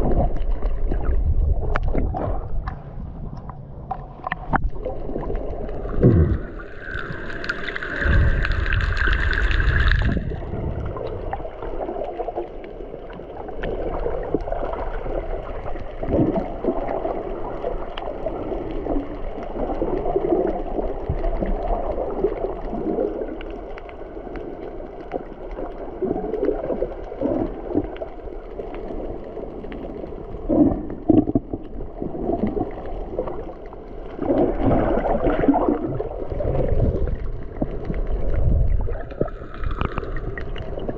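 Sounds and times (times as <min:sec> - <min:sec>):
wind rumble on microphone: 0:00.0 - 0:04.9, 0:08.0 - 0:11.5, 0:35.8 - 0:40.9.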